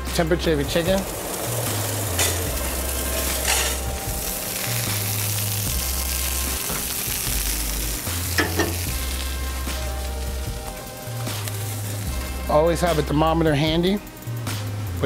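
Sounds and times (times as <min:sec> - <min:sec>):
food sizzling in a pan: 0:00.2 - 0:15.0.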